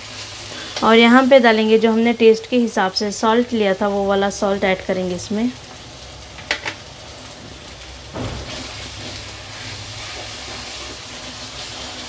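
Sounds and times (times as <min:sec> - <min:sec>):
spices sizzling in hot oil: 0:00.0 - 0:12.0
steel spatula scraping pan: 0:08.4 - 0:12.0.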